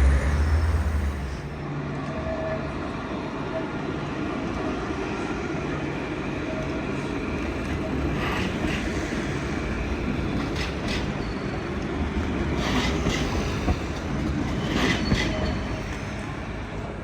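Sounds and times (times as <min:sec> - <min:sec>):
tram rumbling past: 0:00.0 - 0:17.0
wheels clacking over rail joints: 0:07.4 - 0:16.3.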